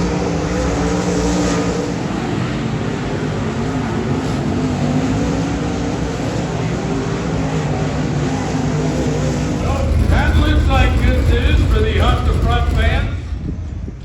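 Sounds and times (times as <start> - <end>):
race car engines droning: 0.0 - 14.0.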